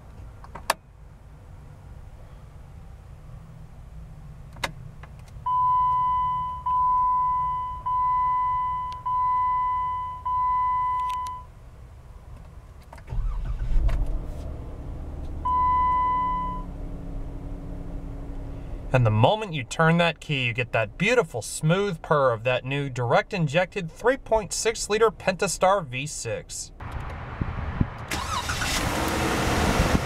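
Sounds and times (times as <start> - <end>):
dashboard warning chime: 5.5 - 11.5, 15.4 - 16.7
ignition key click: 10.9 - 11.4
car engine cranking and starting: 12.8 - 19.4, 28.0 - 30.0
car engine idling: 13.1 - 27.4.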